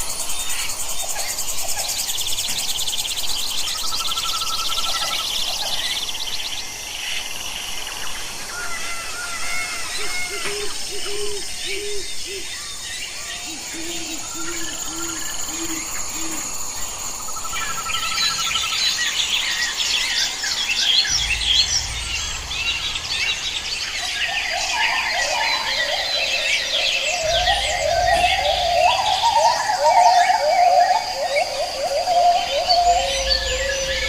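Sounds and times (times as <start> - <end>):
birds chirping and trilling: 0.0 - 34.0
bird calling low notes: 21.0 - 34.0.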